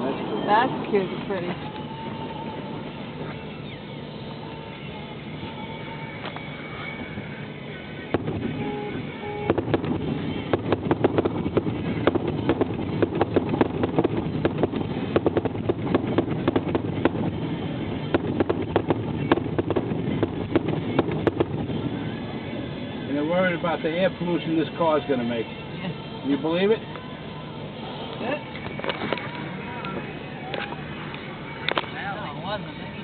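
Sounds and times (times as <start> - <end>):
fireworks bangs and crackles: 8.0 - 22.5.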